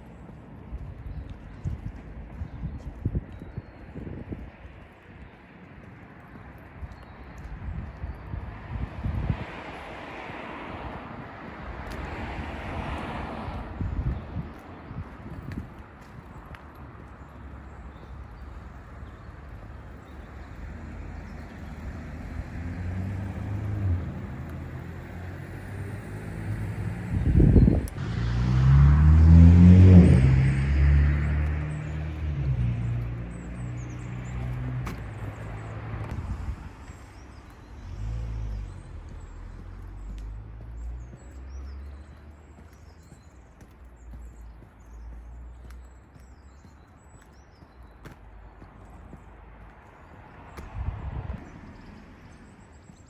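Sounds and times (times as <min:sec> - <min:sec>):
small birds chirping: 0:00.0 - 0:10.4, 0:13.5 - 0:28.0, 0:31.3 - 0:53.0
low traffic rumble: 0:00.0 - 0:53.0
car passing: 0:08.4 - 0:15.1, 0:17.5 - 0:46.5.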